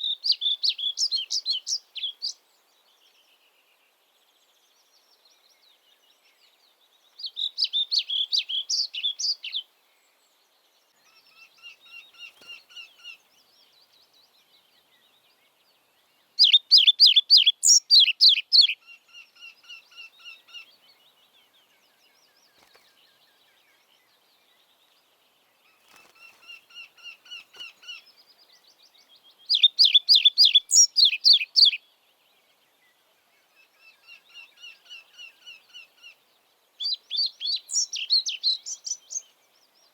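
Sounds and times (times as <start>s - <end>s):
quieter bird song: 0.0s - 39.9s.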